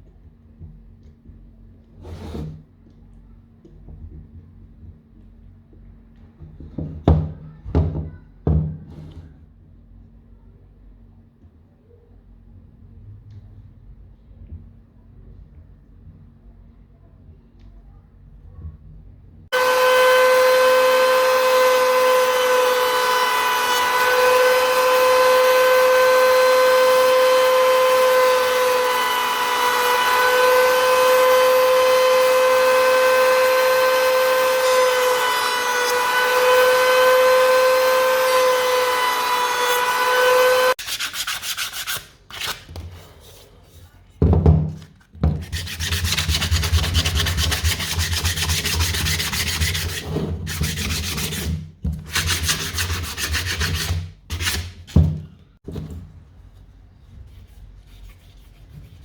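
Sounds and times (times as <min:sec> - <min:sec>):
power tool motor whining: 0:19.6 - 0:40.8
sanding on wood: 0:45.4 - 0:51.5, 0:52.1 - 0:54.6.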